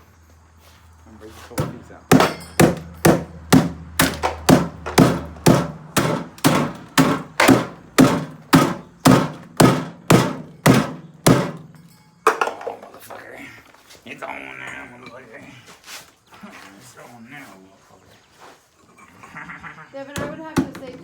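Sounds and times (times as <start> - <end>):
hammer blows on refrigerator: 1.5 - 11.9.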